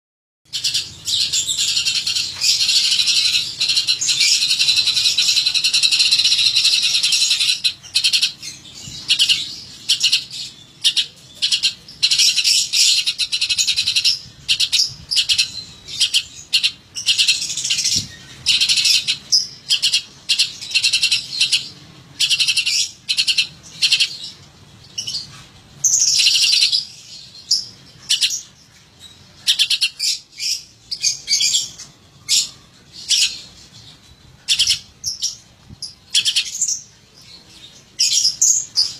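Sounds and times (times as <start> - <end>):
songbird chirping: 0.5 - 38.9.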